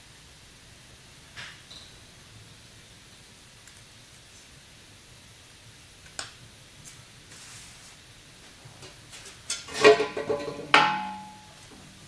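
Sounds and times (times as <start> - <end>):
metal clanking and ringing: 9.7 - 11.9.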